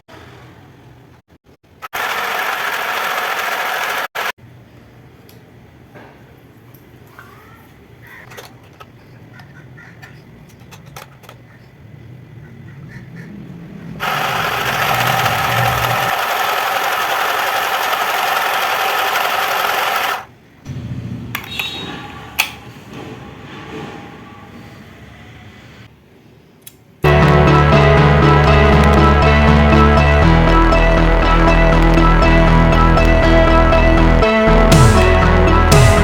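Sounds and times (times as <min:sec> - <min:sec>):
sewing machine fast stitching: 0:01.9 - 0:04.3, 0:14.0 - 0:20.3
sewing machine low hum: 0:01.9 - 0:04.3, 0:14.0 - 0:20.3
sewing machine clicks: 0:14.0 - 0:20.3.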